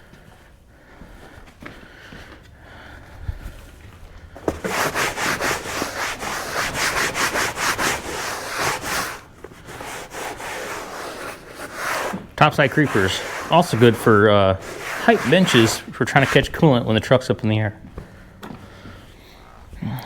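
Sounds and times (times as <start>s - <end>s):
rapid rubbing strokes: 4.5s - 17.1s.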